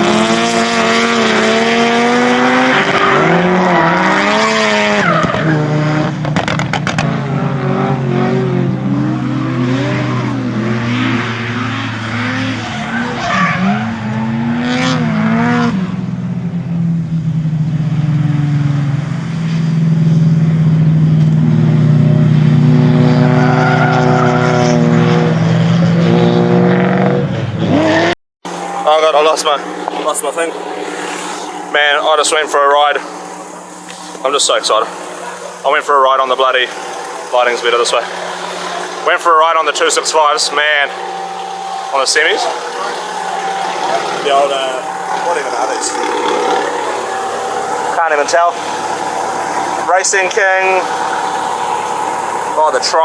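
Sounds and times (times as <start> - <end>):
car engine revving: 0.0 - 53.0
tyre squeal: 8.8 - 15.0, 40.7 - 49.9.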